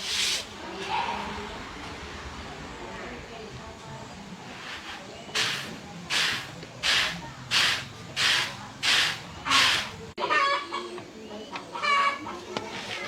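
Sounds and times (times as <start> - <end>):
chicken clucking: 8.8 - 13.0.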